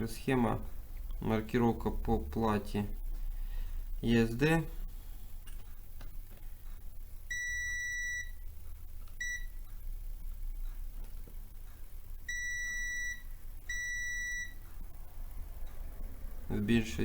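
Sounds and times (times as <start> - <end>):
multimeter continuity beeps: 7.3 - 11.0, 11.6 - 14.7.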